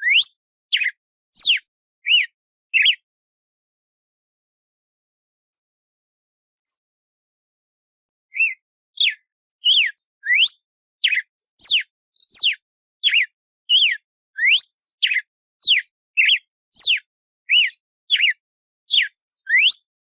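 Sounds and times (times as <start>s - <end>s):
bird singing whistled notes: 0.0s - 3.0s, 8.3s - 19.9s.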